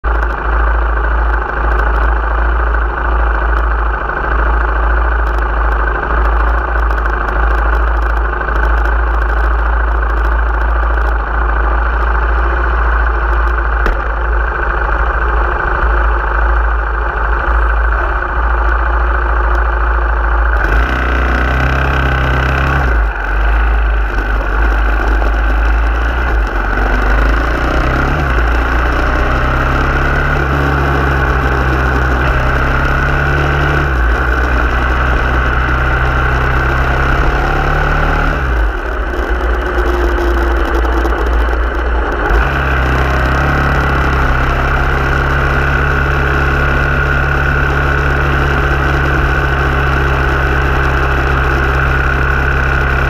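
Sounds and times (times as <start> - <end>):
car engine accelerating: 0.0 - 53.0
car engine idling: 0.0 - 53.0.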